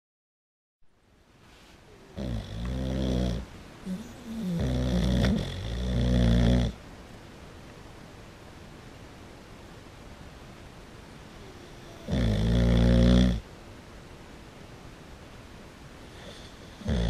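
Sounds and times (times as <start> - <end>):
dog snoring loudly: 2.2 - 6.8, 11.6 - 13.4, 16.1 - 17.0.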